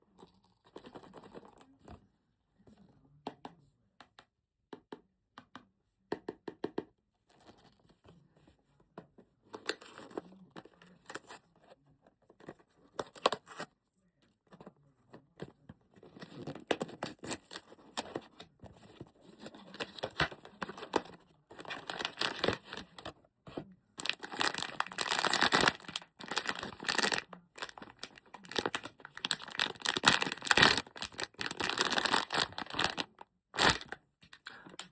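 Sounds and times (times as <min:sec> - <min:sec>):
packaging crinkling and tearing: 0:19.7 - 0:23.1, 0:24.0 - 0:34.0.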